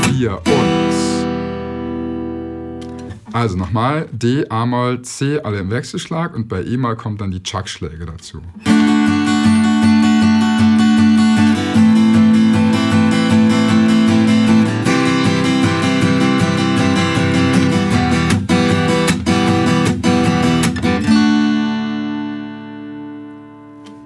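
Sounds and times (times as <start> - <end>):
acoustic guitar strummed: 0.0 - 3.5, 8.6 - 24.0.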